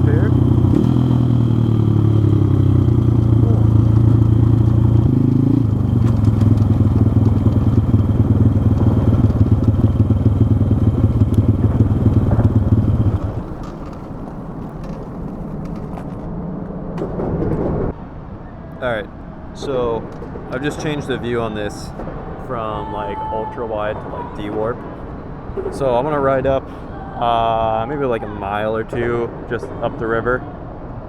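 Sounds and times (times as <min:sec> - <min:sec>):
small motorcycle engine running: 0:00.0 - 0:16.4
faint rustling: 0:00.4 - 0:16.5.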